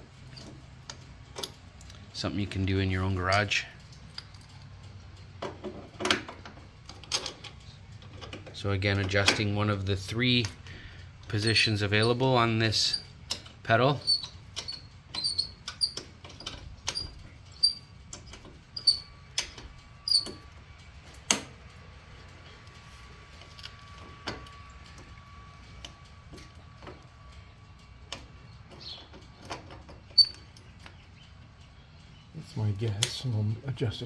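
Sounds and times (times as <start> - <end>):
metal tools clinking: 3.2 - 5.0, 5.6 - 10.6.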